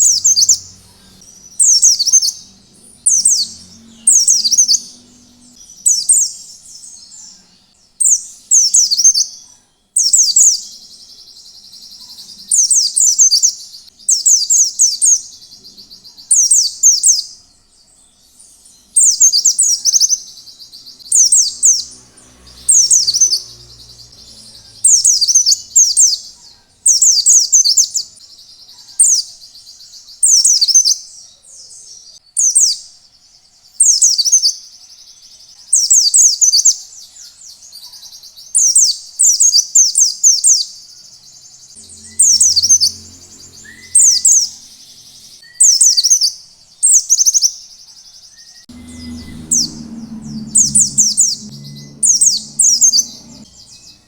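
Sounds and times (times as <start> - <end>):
bird singing high-pitched phrases: 41.7 - 47.6
faint low hum: 48.7 - 54.0.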